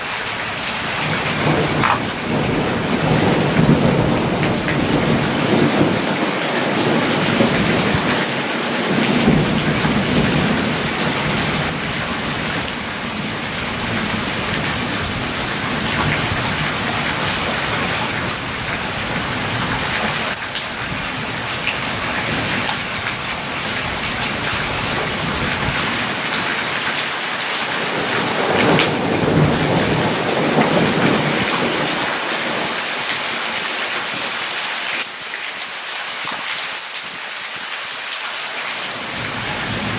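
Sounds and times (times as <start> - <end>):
heavy rain pouring: 0.0 - 39.9
low thunder rumbling: 0.8 - 20.0.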